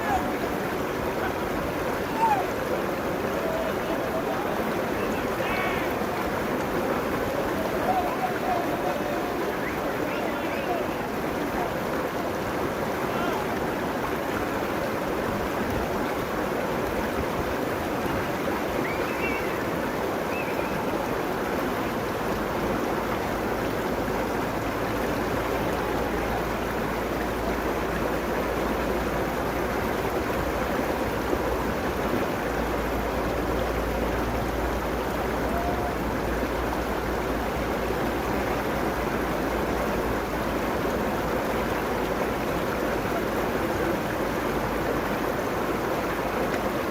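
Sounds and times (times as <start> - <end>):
river water rushing: 0.0 - 46.9.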